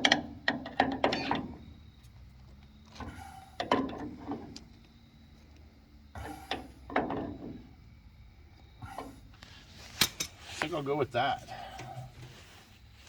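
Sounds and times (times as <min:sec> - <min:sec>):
metal pipe fittings clicking and scraping: 0:08.8 - 0:10.7.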